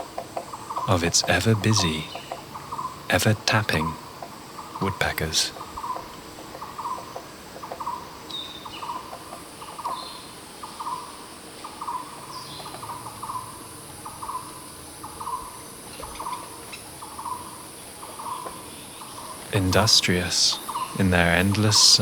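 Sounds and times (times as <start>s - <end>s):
woodpecker tapping on wood: 0.0s - 10.0s
faint bird chirps: 0.0s - 22.0s
high insect hiss: 0.0s - 22.0s.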